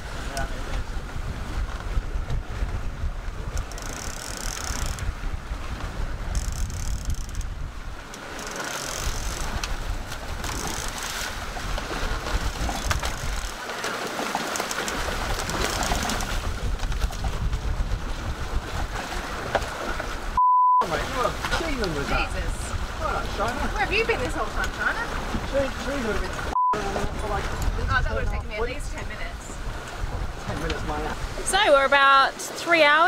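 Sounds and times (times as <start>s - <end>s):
wind and sea rumble: 0.0s - 33.0s
winch ratchet clicking: 3.5s - 5.1s, 6.3s - 7.5s, 8.1s - 9.7s, 10.4s - 11.1s.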